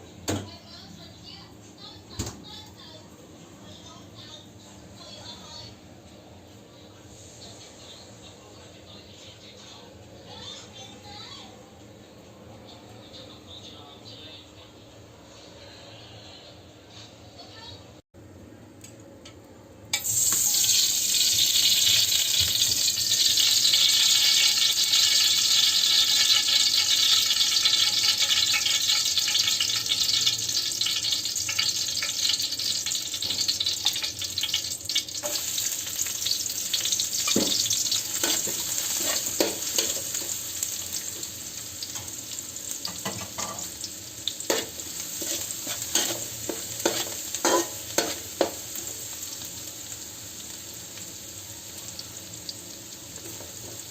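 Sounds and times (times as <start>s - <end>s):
food sizzling in hot oil: 19.9s - 53.9s
spatula scraping a pan: 37.4s - 40.4s, 44.5s - 48.6s.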